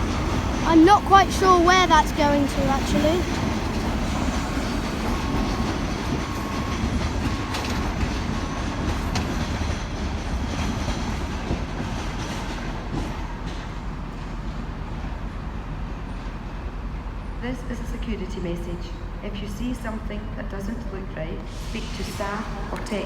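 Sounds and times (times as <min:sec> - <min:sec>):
wheels clicking over rail joints: 0:00.0 - 0:14.6
diesel train rumble: 0:00.0 - 0:23.0.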